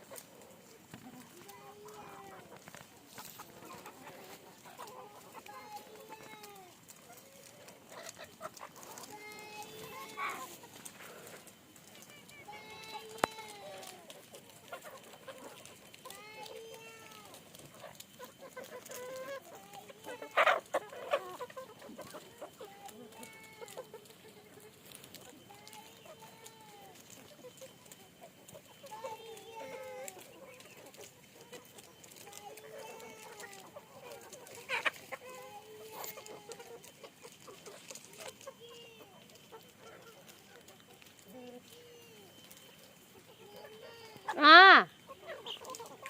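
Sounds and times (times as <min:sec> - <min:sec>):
chickens clucking: 0:00.0 - 0:46.0
chicken squawk: 0:07.0 - 0:09.2, 0:12.7 - 0:25.3, 0:29.6 - 0:38.6, 0:42.4 - 0:46.0.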